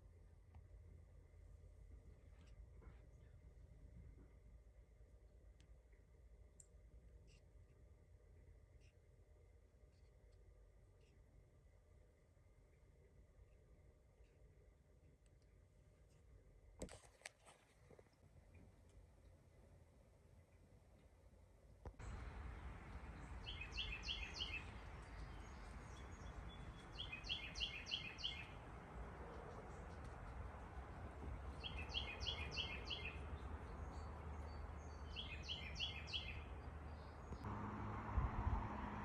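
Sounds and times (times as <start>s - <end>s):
songbird chirping: 21.9s - 37.9s
low hum: 22.0s - 35.2s.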